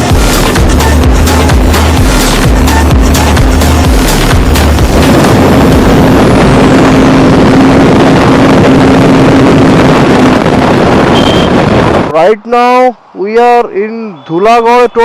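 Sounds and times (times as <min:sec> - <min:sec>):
vehicle engine droning: 0:00.0 - 0:12.1
wind buffeting microphone: 0:04.4 - 0:12.1.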